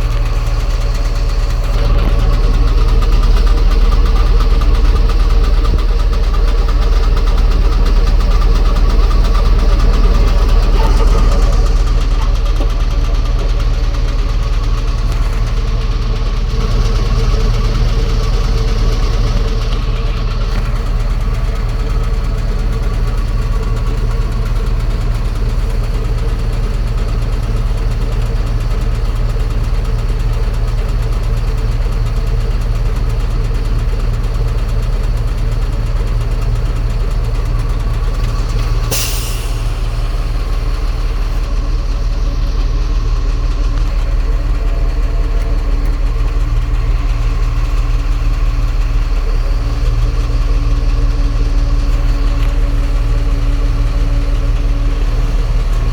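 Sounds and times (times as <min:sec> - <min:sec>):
truck engine idling: 0:00.0 - 0:55.9
brief hiss: 0:38.4 - 0:41.4.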